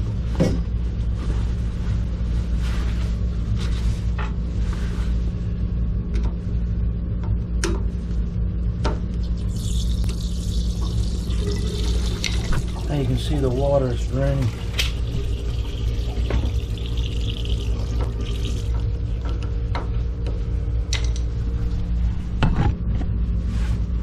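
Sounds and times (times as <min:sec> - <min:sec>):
steady low hum: 0:00.0 - 0:24.0
water hissing running: 0:09.3 - 0:18.8.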